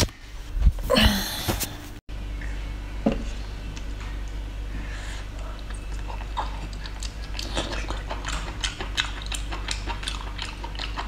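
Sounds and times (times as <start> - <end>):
steady low hum: 0.0 - 11.0
chewing with wet mouth smacks: 5.4 - 11.0.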